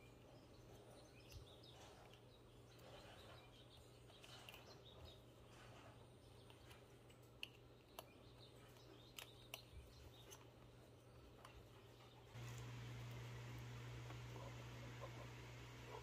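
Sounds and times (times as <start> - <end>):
low steady hum: 9.6 - 16.0.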